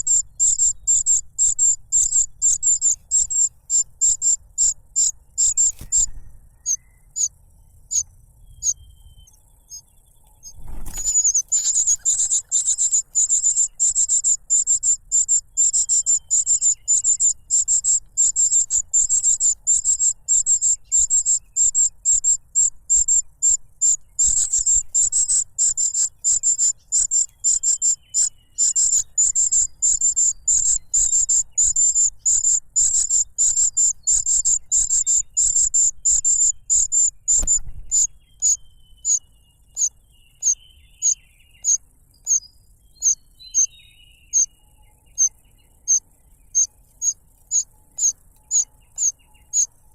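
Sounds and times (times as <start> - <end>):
chick begging calls: 10.5 - 39.2.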